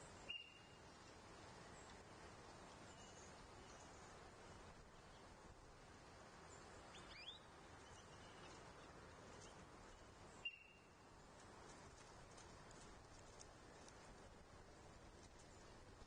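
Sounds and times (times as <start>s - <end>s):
faint bird chirps: 0.2s - 0.8s, 2.9s - 4.1s, 6.5s - 9.6s, 10.3s - 11.0s.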